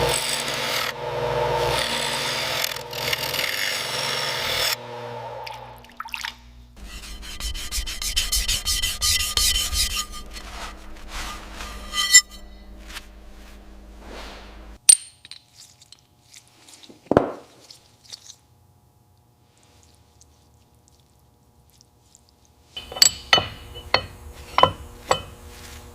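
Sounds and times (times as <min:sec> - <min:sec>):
steady hum: 0:04.8 - 0:14.8, 0:22.2 - 0:25.9
tool scraping rusty metal: 0:06.8 - 0:14.8, 0:22.8 - 0:25.9.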